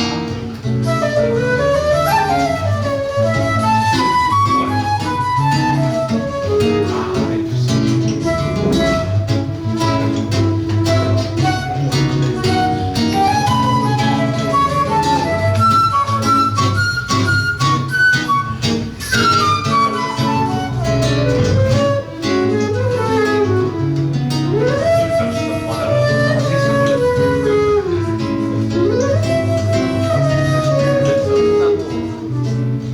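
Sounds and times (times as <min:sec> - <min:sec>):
flute melody: 0:00.0 - 0:32.9
guitar plucked bass and chords: 0:00.0 - 0:32.9.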